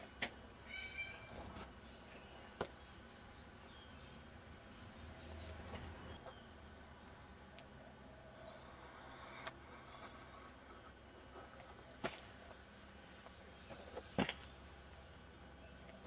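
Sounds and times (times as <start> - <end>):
bird chirps: 0.7 - 6.8.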